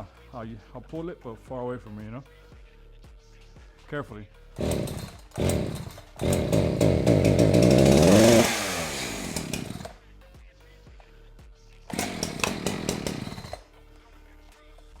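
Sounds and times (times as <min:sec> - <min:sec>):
chainsaw engine revving and idling: 0:04.6 - 0:10.0, 0:11.9 - 0:13.6.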